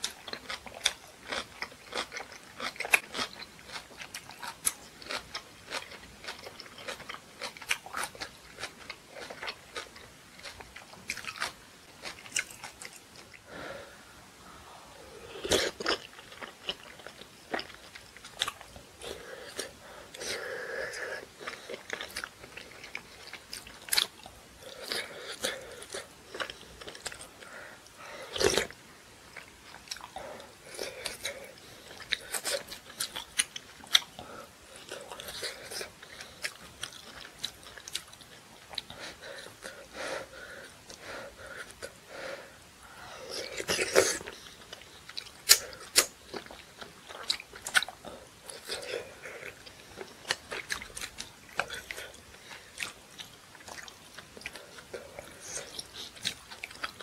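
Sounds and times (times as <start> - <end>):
food crunches: 0.0 - 13.4
person chewing with wet mouth sounds: 0.0 - 13.5, 15.2 - 42.2, 42.8 - 57.0.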